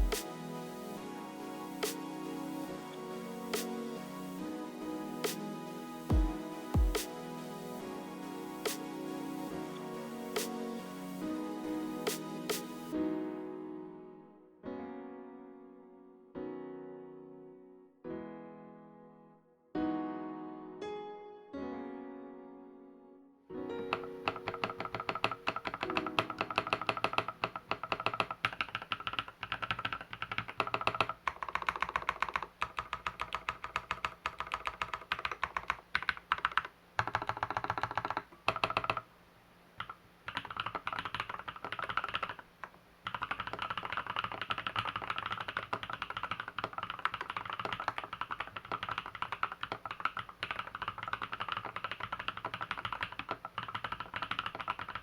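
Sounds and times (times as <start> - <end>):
fast typing on keyboard: 23.9 - 39.1, 39.8 - 55.0.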